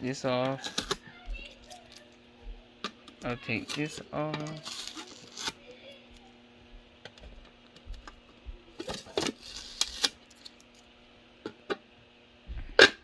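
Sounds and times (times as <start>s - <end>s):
plastic parts clicking and tapping: 0.4s - 2.1s
packaging crinkling: 0.5s - 2.2s, 2.8s - 6.4s, 8.8s - 10.9s.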